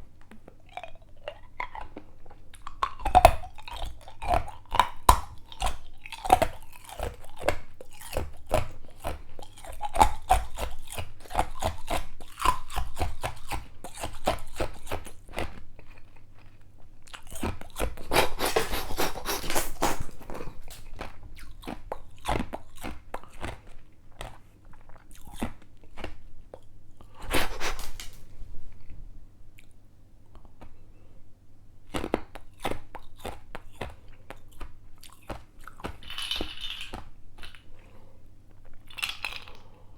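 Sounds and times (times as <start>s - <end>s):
ice cubes crunched in mouth: 17.1s - 21.6s, 35.9s - 37.7s, 38.8s - 39.6s.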